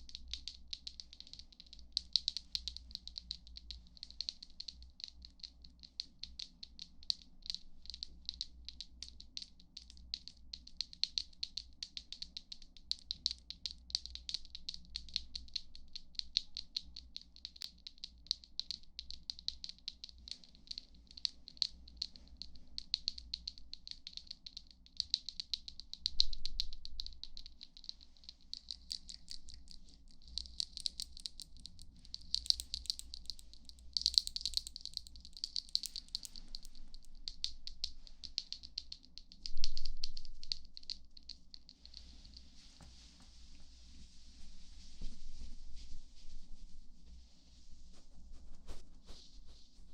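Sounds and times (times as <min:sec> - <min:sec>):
fast crisp tapping and clicking: 0:27.0 - 0:42.1.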